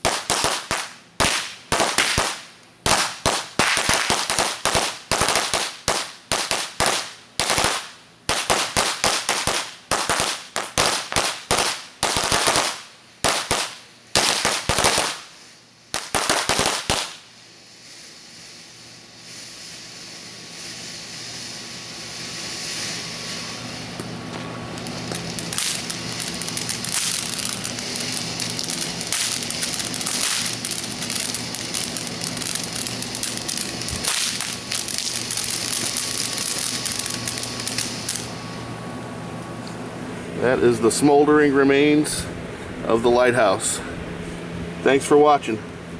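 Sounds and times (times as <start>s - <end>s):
firecrackers banging: 0.0s - 38.8s
steady hissing: 17.0s - 38.6s.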